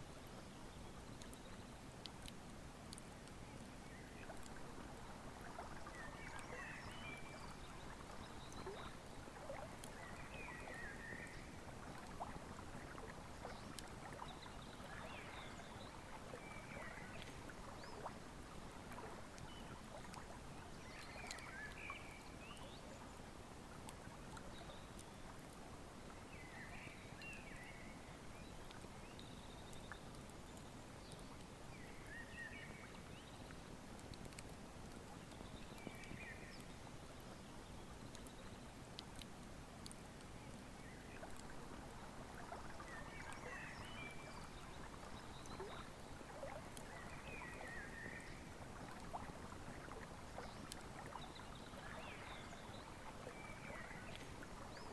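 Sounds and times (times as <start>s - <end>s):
bird song: 5.9s - 11.6s, 13.5s - 18.2s, 20.7s - 23.0s, 26.3s - 33.6s, 35.4s - 38.7s, 42.8s - 46.0s, 46.8s - 48.6s, 50.4s - 54.9s.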